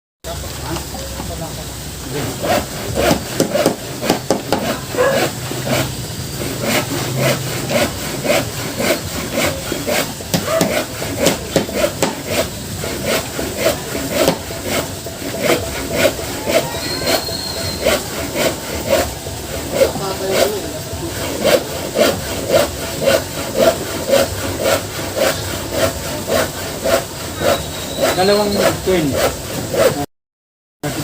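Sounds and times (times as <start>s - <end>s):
hand saw cutting wood: 2.0s - 30.1s.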